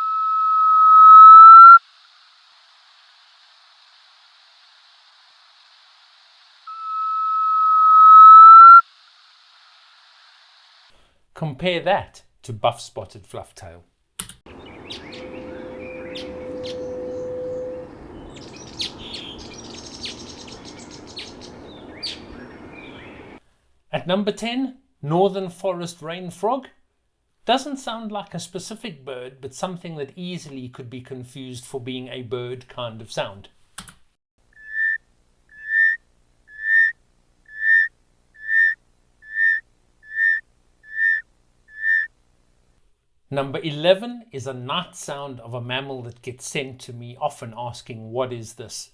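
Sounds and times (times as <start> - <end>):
bird low hooting call: 14.5 - 23.4, 34.6 - 36.9, 37.5 - 42.1
small birds chirping: 14.5 - 23.4.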